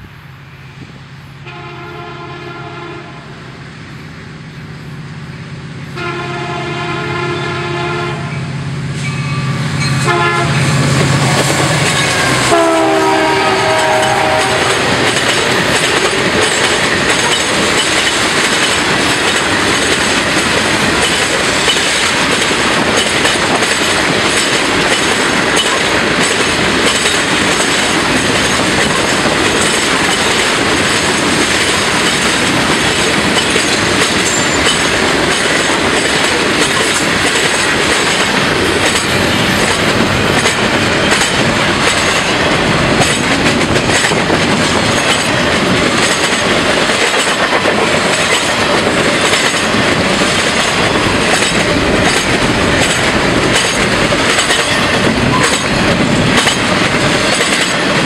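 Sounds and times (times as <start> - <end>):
locomotive engine drone: 0.0 - 46.6
locomotive air horn: 1.4 - 3.3, 5.9 - 8.5, 9.2 - 11.0, 12.0 - 15.0
freight cars clacking over rails: 9.8 - 58.0.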